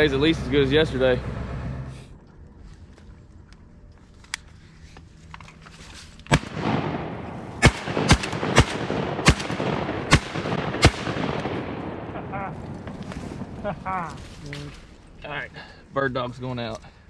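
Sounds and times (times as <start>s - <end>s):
shotgun blasts: 6.3s - 13.6s.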